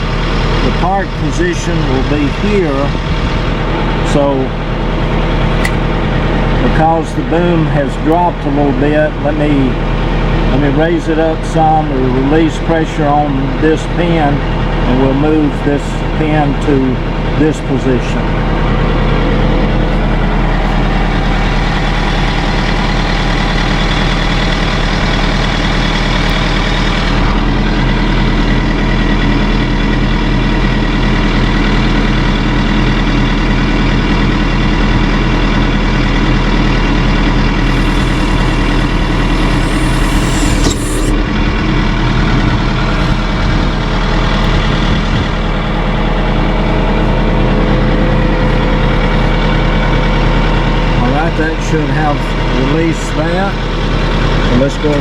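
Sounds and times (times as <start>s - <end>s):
tractor engine running: 0.0s - 55.0s
hydraulic hiss and click: 37.6s - 41.2s.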